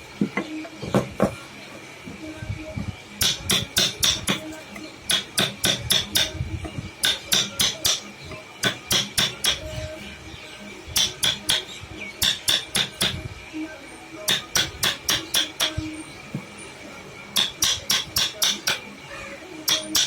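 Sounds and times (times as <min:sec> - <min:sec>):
hammer tapping chisel: 0:17.4 - 0:18.8.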